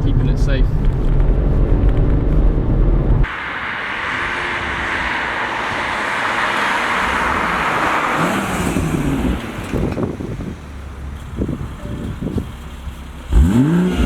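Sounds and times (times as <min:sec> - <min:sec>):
faint car engine: 0:00.0 - 0:14.0
tyres hissing on wet road: 0:03.3 - 0:09.8.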